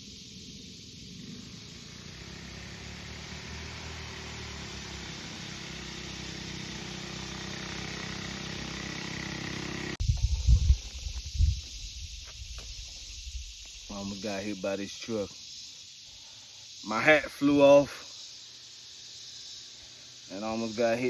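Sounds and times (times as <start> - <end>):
vehicle engine running: 1.0 - 10.0
wind buffeting on microphone: 10.0 - 13.7.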